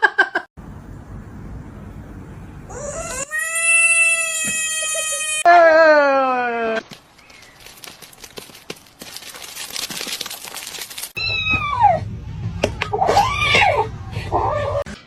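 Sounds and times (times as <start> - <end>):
low hum: 0.6 - 3.2, 11.2 - 15.0.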